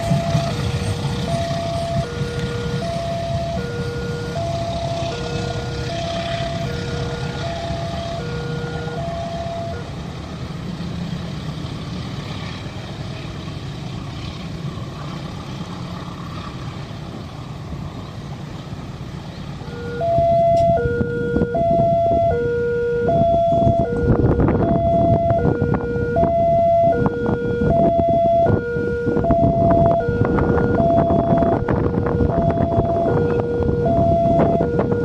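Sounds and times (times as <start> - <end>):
level crossing alarm tones: 0.0 - 9.9, 19.6 - 35.0
low engine rumble: 0.0 - 35.0.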